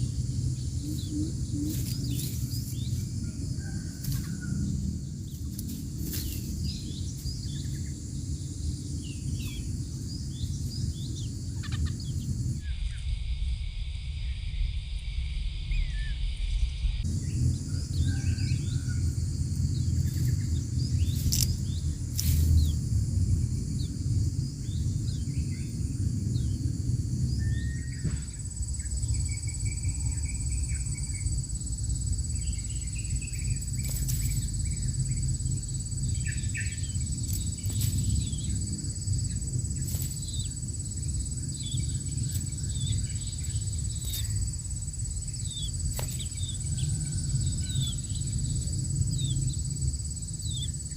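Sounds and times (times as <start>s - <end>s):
bird chirps and trills: 0.0s - 13.0s, 17.1s - 22.8s, 32.2s - 50.9s
high insect drone: 0.0s - 50.9s
low rumble: 0.0s - 50.9s.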